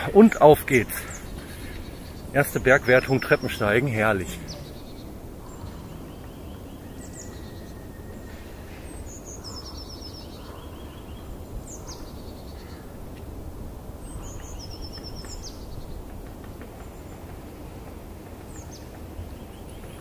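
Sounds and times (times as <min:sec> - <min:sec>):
steady low rumble: 0:00.0 - 0:07.2
songbird singing trills: 0:00.0 - 0:12.9, 0:14.0 - 0:16.2, 0:18.4 - 0:20.0.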